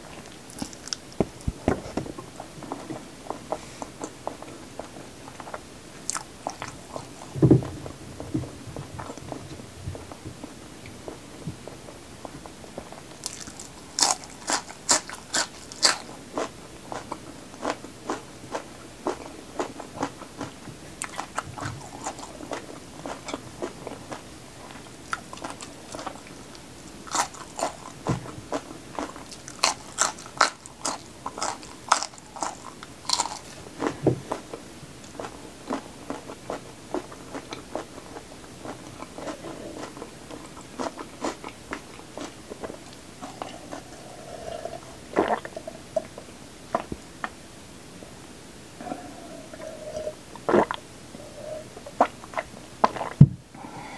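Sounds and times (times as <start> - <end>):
soft wet chewing: 0.1 - 1.6, 2.4 - 47.4
crunching raw vegetables: 0.2 - 1.9, 12.8 - 45.6.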